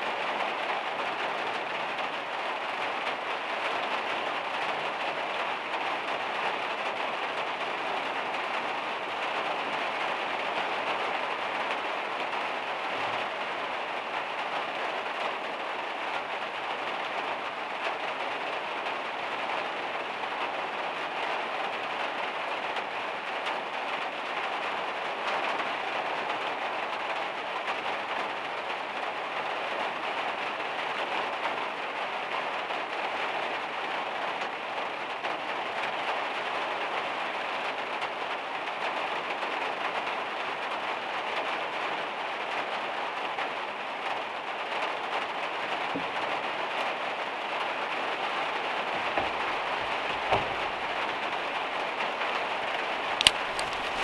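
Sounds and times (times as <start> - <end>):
heavy rain on metal roof: 0.0 - 54.0.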